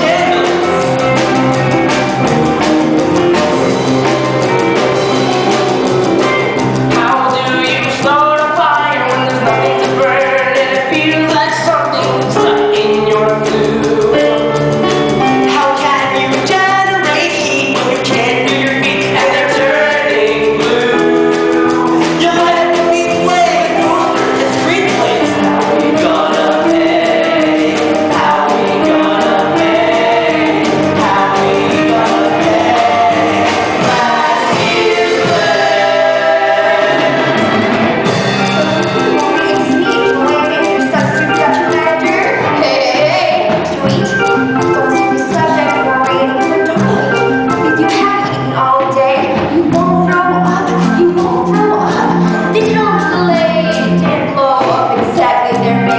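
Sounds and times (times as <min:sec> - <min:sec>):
ensemble singing together: 0:00.0 - 0:11.6, 0:17.0 - 0:47.8
instrumental accompaniment: 0:00.0 - 0:55.9.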